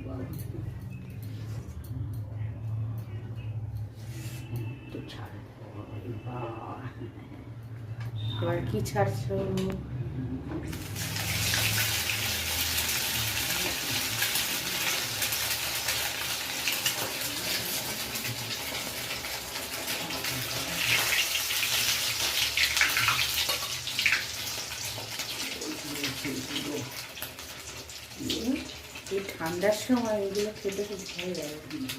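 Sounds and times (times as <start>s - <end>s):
food sizzling and crackling in oil: 10.7s - 31.9s.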